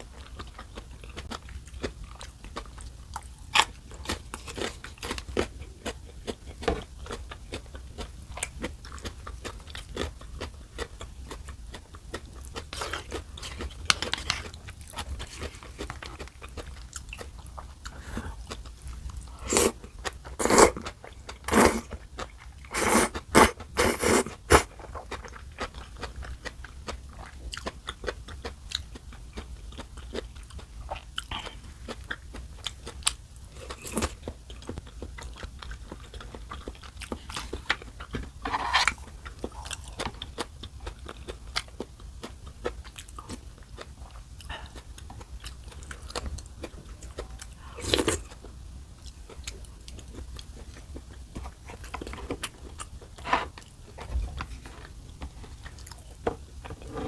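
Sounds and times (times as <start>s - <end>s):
person chewing food: 0.0s - 57.0s
loud short eating bursts: 19.4s - 19.8s, 20.4s - 20.9s, 21.5s - 21.9s, 22.7s - 24.7s.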